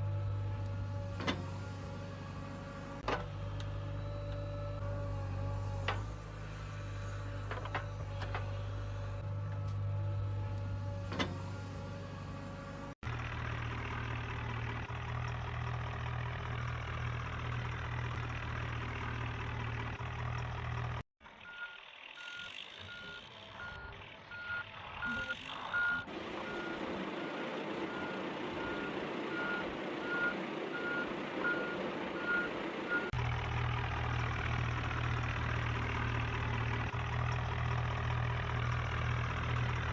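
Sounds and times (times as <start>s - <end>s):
high reversing beep: 21.5s - 33.1s.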